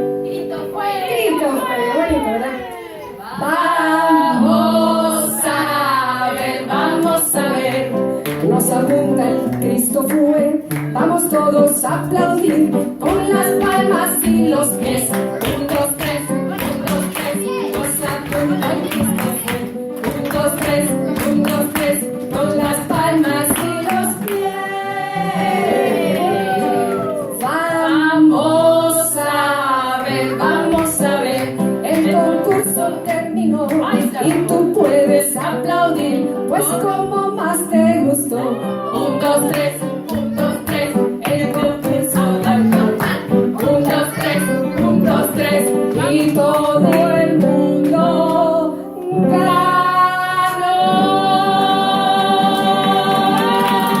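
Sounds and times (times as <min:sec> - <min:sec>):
guitar: 0:00.0 - 0:54.0
women singing: 0:00.0 - 0:54.0.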